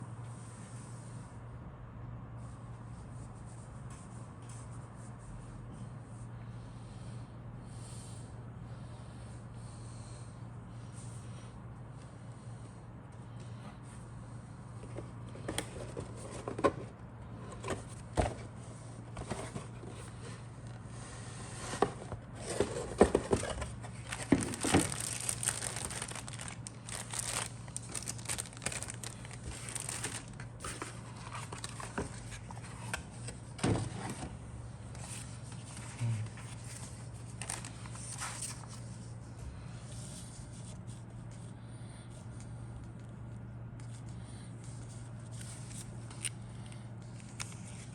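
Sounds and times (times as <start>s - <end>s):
plastic bags crinkling: 23.4s - 32.3s, 37.4s - 38.2s.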